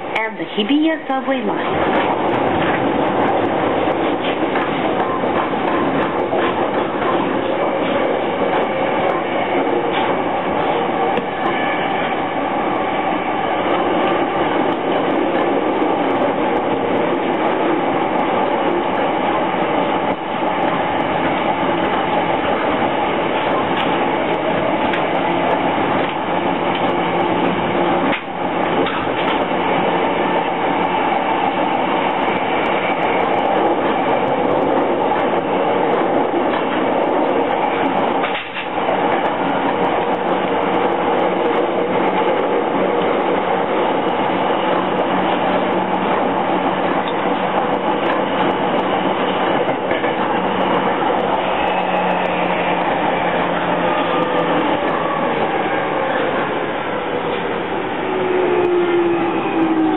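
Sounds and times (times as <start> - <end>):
train wheels rumbling on rail: 0.0 - 59.9
rail joint clicking: 1.5 - 56.5.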